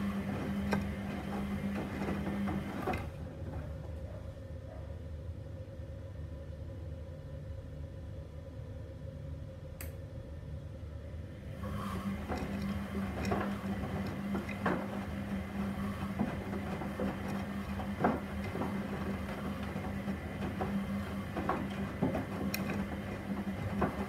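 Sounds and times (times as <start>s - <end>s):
washing machine motor humming: 0.0s - 4.8s, 11.0s - 24.0s
drum knocks and clicks: 12.2s - 24.0s.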